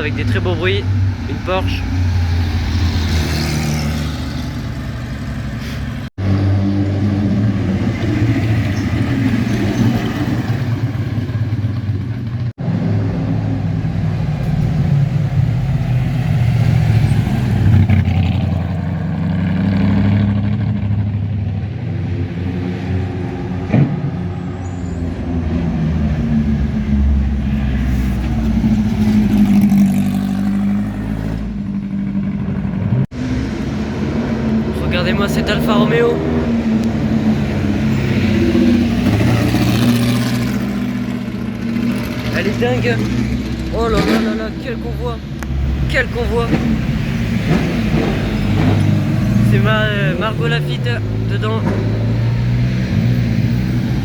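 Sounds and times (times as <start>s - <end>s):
cars driving past revving: 0.0s - 54.0s.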